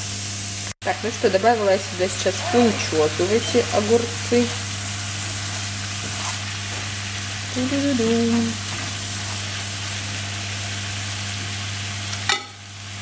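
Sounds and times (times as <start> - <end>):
vegetables sizzling in a frying pan: 0.0 - 13.0
wooden spatula stirring: 2.2 - 7.2, 8.0 - 10.2.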